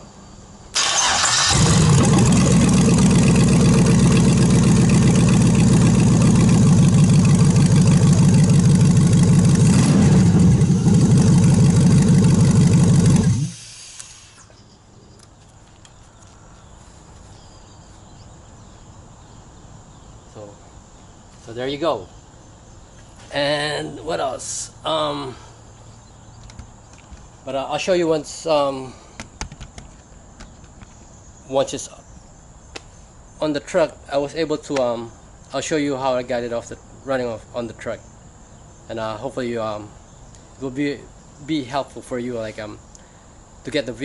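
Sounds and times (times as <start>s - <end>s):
car engine starting and running: 0.8s - 13.9s.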